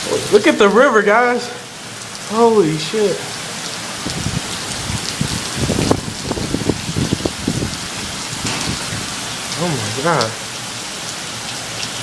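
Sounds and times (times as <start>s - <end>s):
heavy rain pouring: 0.0s - 12.0s
low rumbling: 4.0s - 10.0s.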